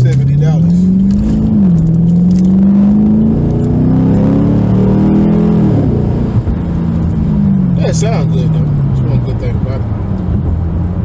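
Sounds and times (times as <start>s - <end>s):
car exhaust accelerating: 0.0s - 11.0s.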